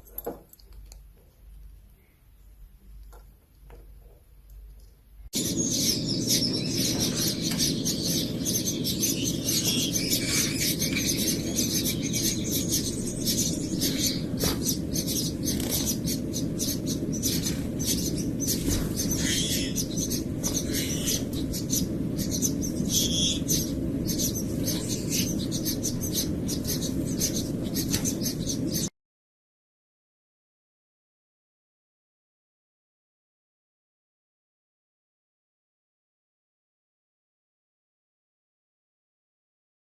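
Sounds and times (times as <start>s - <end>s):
steady low hum: 0.0s - 28.9s
bird chirping and chattering: 5.4s - 28.9s.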